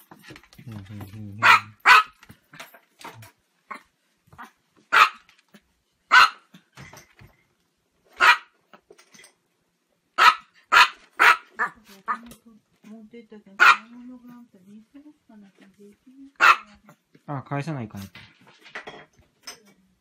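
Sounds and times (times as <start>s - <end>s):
small dog yapping: 1.4s - 2.2s, 4.4s - 5.3s, 6.1s - 6.5s, 8.2s - 8.5s, 10.2s - 12.2s, 16.4s - 16.7s.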